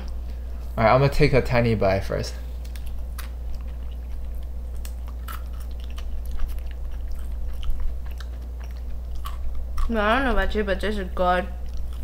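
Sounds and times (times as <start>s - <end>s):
steady low hum: 0.0s - 12.0s
chewing crispy food: 2.6s - 10.0s, 11.6s - 12.0s.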